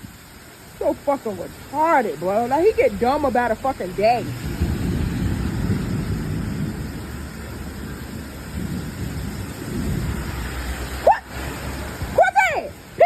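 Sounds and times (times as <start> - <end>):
rain falling: 0.0 - 13.0
low rumble: 3.7 - 10.6.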